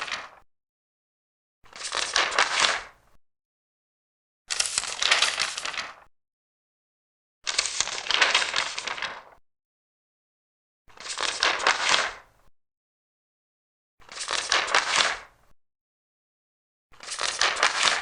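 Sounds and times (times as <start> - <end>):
paper pages turning: 0.0 - 0.4, 1.8 - 2.9, 4.5 - 6.1, 7.5 - 9.4, 11.0 - 12.2, 14.1 - 15.2, 17.0 - 18.0.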